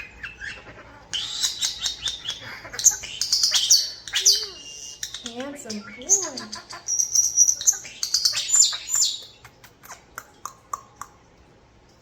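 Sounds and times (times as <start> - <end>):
starlings whistling and calling: 0.0 - 9.4
starlings clicking: 4.0 - 6.9.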